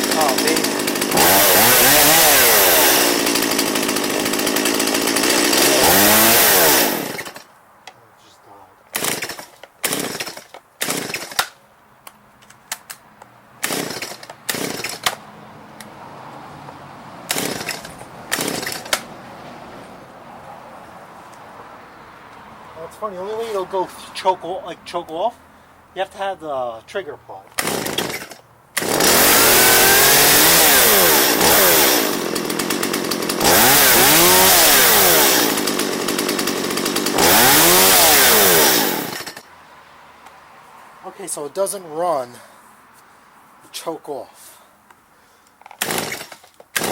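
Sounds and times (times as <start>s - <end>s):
chainsaw engine revving: 0.0s - 7.4s, 8.9s - 11.5s, 13.6s - 15.2s, 17.3s - 19.1s, 27.6s - 39.4s, 45.7s - 46.9s.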